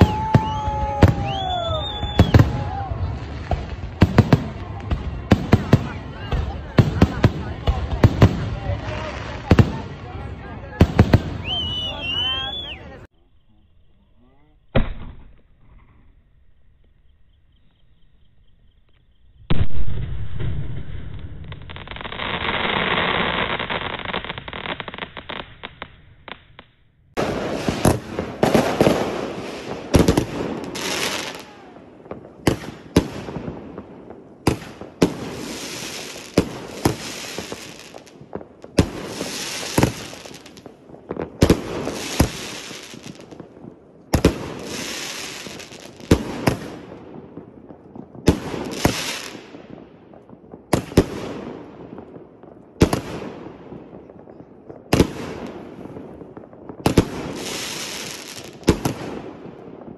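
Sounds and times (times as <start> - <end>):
firework bangs: 0.0 - 13.1, 14.6 - 15.9, 19.4 - 59.9
firework hiss: 0.0 - 13.1, 19.5 - 43.5, 44.1 - 47.0, 48.3 - 49.6, 56.8 - 59.3.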